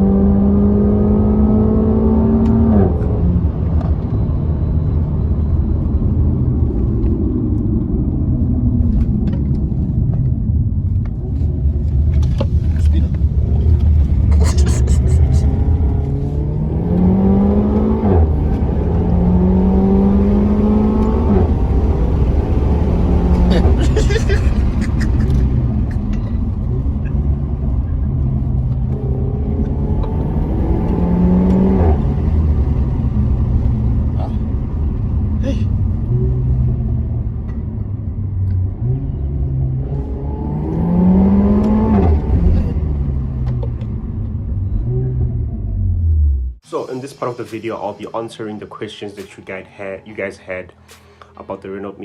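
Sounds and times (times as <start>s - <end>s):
car engine accelerating: 0.0s - 47.9s.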